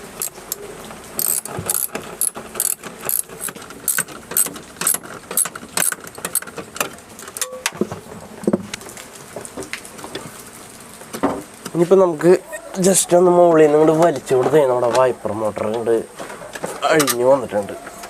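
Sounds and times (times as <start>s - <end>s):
ratchet wrench clicking: 1.2s - 6.5s.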